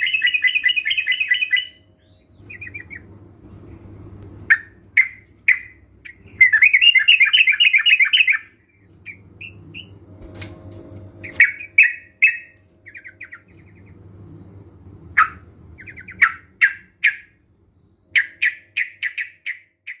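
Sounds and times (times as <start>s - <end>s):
bulbuls calling and chattering: 11.2s - 17.3s.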